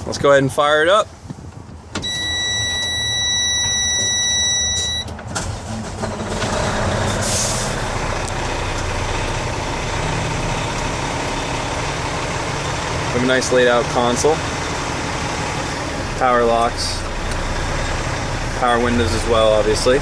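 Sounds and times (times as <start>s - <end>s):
diesel engine starting and idling: 1.8s - 20.0s
dash warning buzzer: 2.0s - 5.1s.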